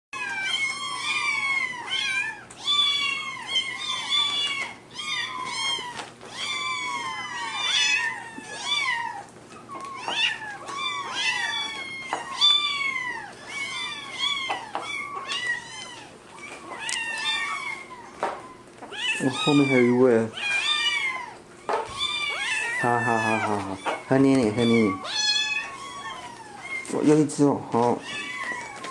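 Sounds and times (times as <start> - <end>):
kittens meowing: 0.2 - 28.9.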